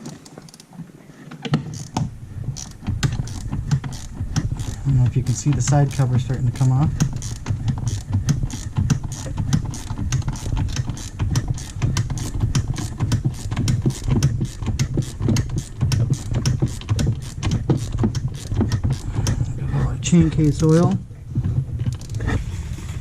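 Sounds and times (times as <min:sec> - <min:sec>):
steady low hum: 0:01.8 - 0:23.0
socket ratchet clicking: 0:02.6 - 0:04.8, 0:05.4 - 0:19.4.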